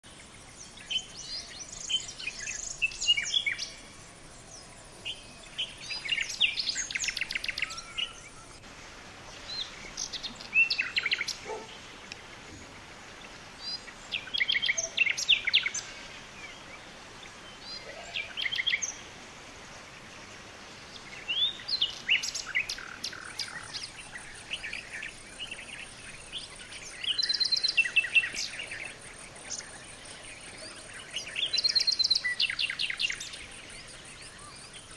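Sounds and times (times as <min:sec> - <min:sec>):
steady outdoor hiss: 0:00.0 - 0:34.9
wild birds chirping and trilling: 0:00.0 - 0:34.9.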